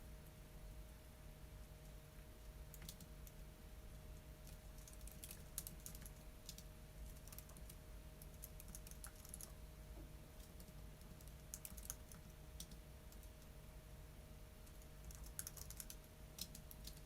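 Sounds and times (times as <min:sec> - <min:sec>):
faint keyboard typing: 0:01.6 - 0:09.6, 0:10.4 - 0:13.6, 0:14.6 - 0:17.0.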